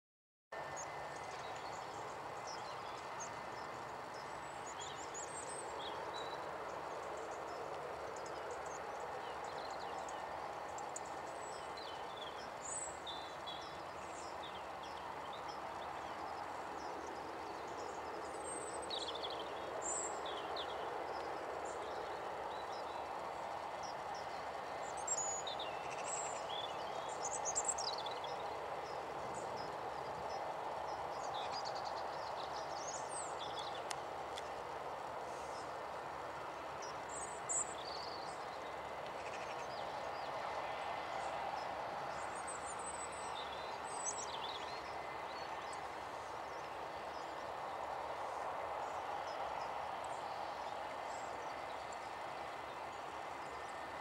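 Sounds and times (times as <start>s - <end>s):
steady background noise: 0.6s - 54.0s
birds chirping: 0.7s - 40.6s.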